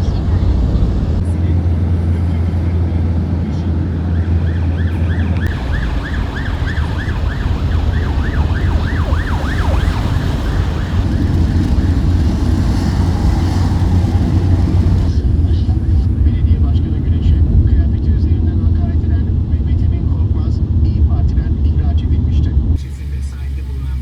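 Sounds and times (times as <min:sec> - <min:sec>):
city traffic rumble: 0:00.0 - 0:24.0
emergency siren yelping: 0:03.5 - 0:12.4.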